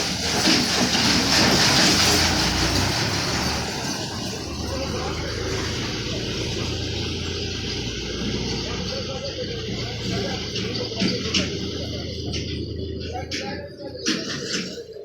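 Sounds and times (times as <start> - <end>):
tractor diesel engine rattling: 0.0 - 15.0.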